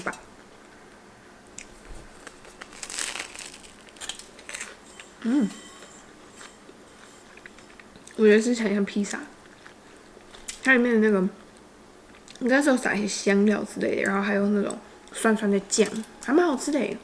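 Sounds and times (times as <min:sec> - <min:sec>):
crisp sandwich crunching: 0:01.6 - 0:04.8.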